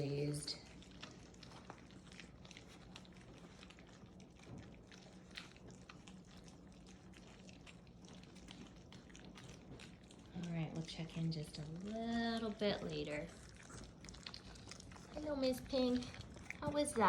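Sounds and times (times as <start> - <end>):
puppies lapping food: 0.0 - 17.0
steady low hum: 0.0 - 17.0.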